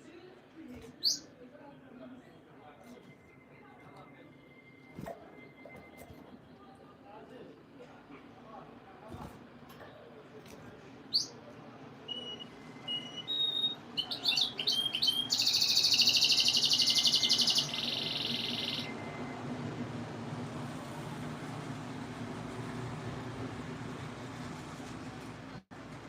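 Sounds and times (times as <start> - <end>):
canary singing trills: 1.0 - 1.3, 11.1 - 11.4, 12.1 - 19.1.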